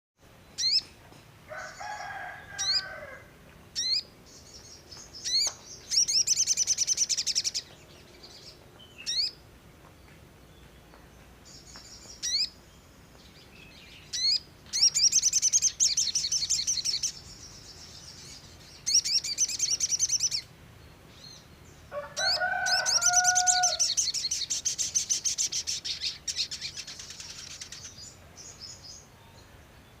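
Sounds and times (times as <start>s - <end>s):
songbird whistles and trills: 13.7s - 17.2s
lower fuller bird call: 21.9s - 27.9s.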